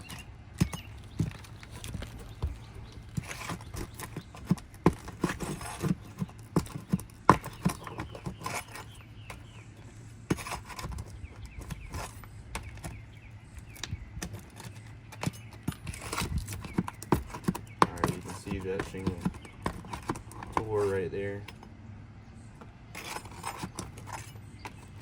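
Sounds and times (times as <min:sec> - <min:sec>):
pry tool knocking on shingles: 0:00.0 - 0:09.4, 0:13.8 - 0:20.8.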